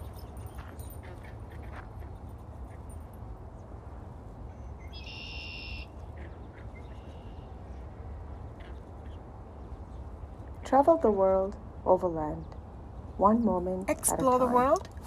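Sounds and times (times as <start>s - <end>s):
faint bird chirps: 4.6s - 5.9s.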